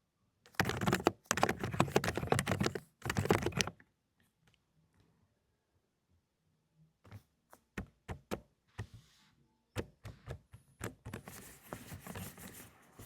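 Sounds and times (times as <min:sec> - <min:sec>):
muted keyboard typing: 0:00.5 - 0:03.8, 0:09.8 - 0:12.7.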